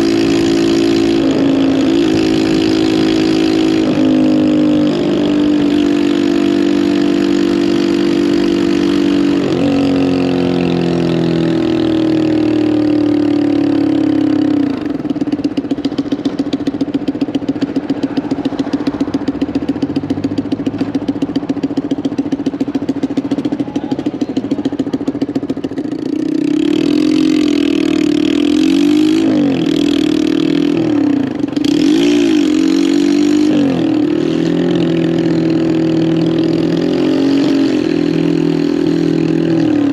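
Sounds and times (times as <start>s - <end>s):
motorcycle engine revving and idling: 0.0s - 39.9s.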